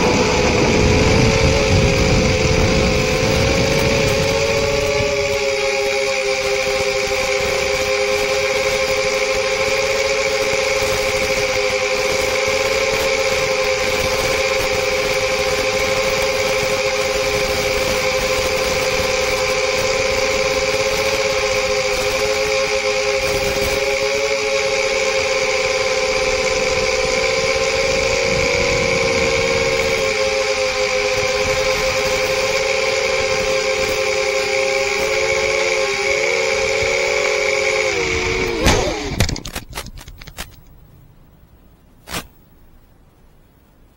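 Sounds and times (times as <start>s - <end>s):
quadcopter motors whining: 0.0s - 40.6s
constant hiss: 39.3s - 43.9s.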